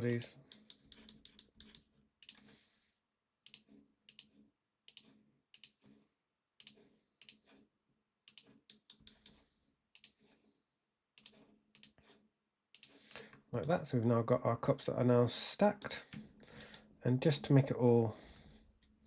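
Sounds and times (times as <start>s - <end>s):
mouse and keyboard clicks: 0.1s - 2.5s, 3.4s - 5.9s, 6.6s - 7.6s, 8.3s - 9.4s, 10.0s - 10.2s, 11.2s - 12.0s.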